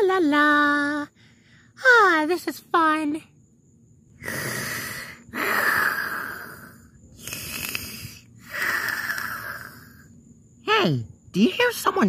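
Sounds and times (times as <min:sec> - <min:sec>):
person snoring: 0:04.2 - 0:10.0.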